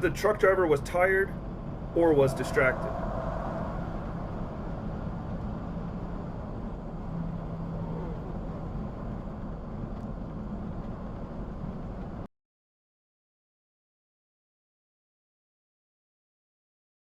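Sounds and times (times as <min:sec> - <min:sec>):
faint low hum: 0:00.0 - 0:12.3
vehicle road and engine noise: 0:00.0 - 0:12.3.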